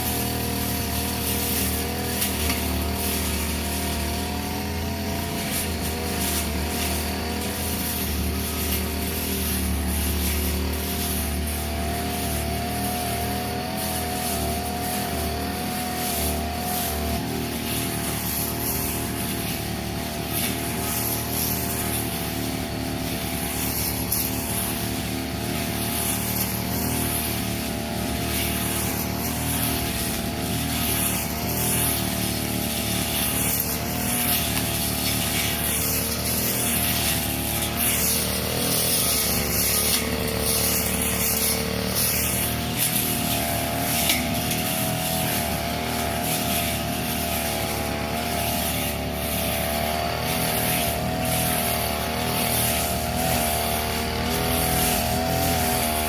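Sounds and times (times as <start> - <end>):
brush cutter engine running: 0.0 - 56.0
hiss of cut grass: 0.0 - 56.0.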